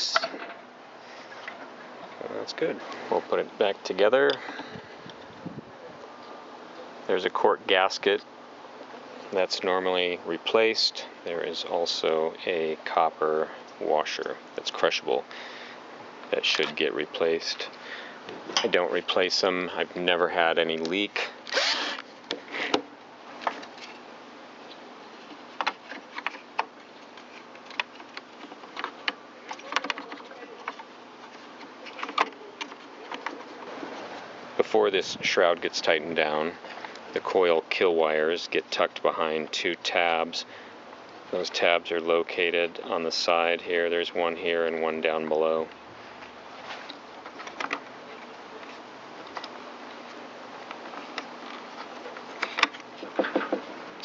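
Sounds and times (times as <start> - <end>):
low background hum: 0.0 - 54.0
low room hiss: 0.0 - 54.0.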